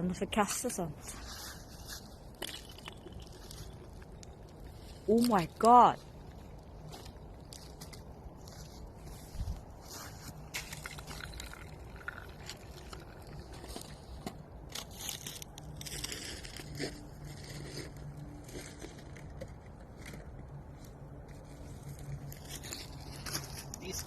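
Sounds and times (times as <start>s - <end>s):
ice chunks scraping across ice: 14.7s - 19.1s.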